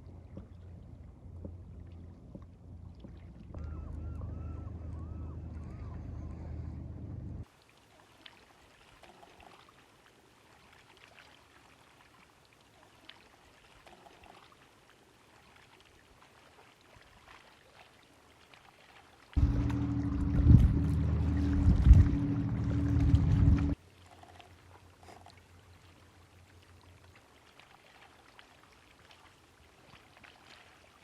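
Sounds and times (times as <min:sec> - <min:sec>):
small water splashes: 0:00.0 - 0:06.3, 0:07.4 - 0:31.0
low steady hum: 0:00.0 - 0:07.4, 0:19.4 - 0:23.8
water trickling and dripping: 0:07.4 - 0:31.0.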